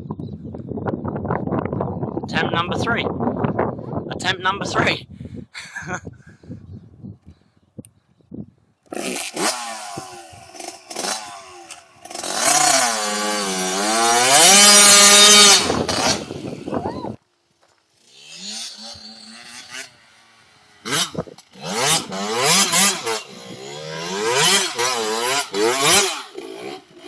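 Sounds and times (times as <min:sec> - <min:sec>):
small motorbike engine revving: 0:08.9 - 0:17.1, 0:18.0 - 0:27.0.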